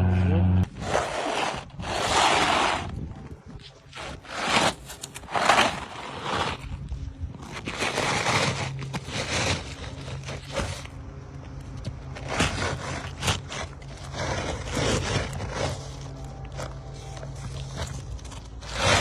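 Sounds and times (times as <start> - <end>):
hand tool scraping roof shingles: 0.8 - 2.9, 3.9 - 6.7, 7.4 - 10.9, 12.1 - 16.7, 17.5 - 19.0.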